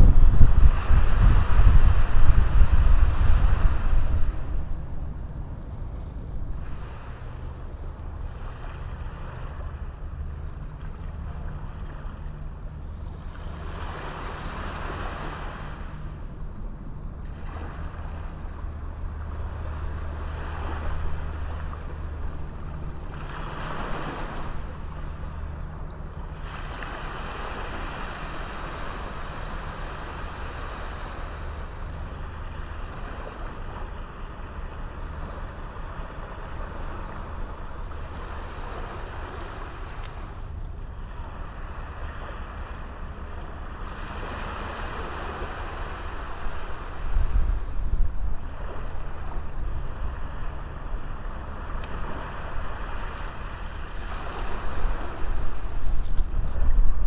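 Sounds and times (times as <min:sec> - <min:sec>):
sea waves breaking on beach: 0:00.0 - 0:57.0.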